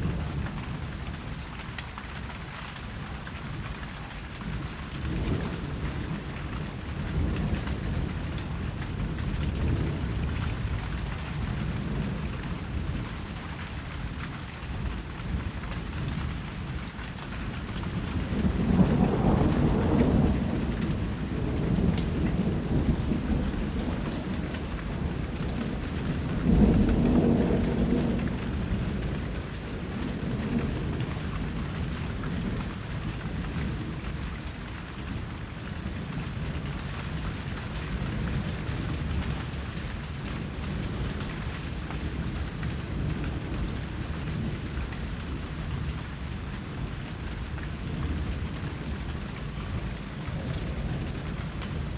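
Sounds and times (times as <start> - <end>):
steady rain: 0.0 - 51.9
thunder rolling: 17.9 - 29.4.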